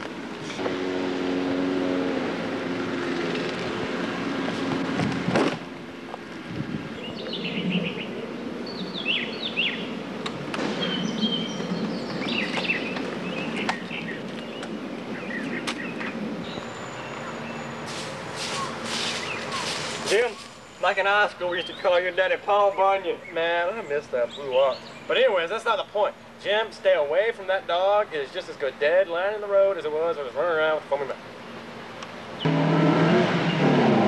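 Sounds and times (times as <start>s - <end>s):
outdoor background noise: 0.0s - 34.0s
small birds chirping: 6.8s - 10.0s, 10.7s - 26.5s.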